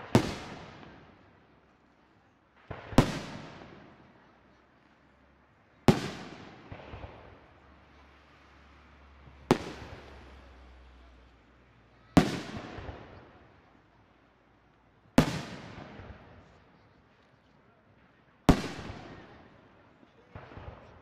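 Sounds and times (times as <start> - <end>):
smaller firework pops: 0.0 - 1.2, 2.5 - 4.1, 5.9 - 7.5, 9.3 - 10.6, 12.2 - 13.4, 14.7 - 17.4, 18.5 - 19.5, 20.2 - 21.0.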